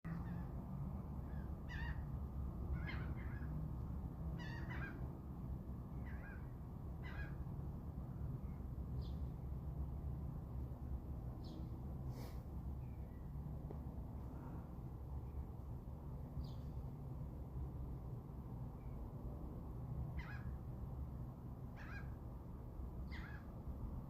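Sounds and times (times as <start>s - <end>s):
steady low rumble: 0.1s - 24.0s
bird harsh calls: 1.3s - 2.1s, 2.7s - 3.6s, 4.4s - 5.1s, 6.0s - 7.4s, 20.2s - 20.6s, 21.8s - 22.2s, 23.1s - 23.5s.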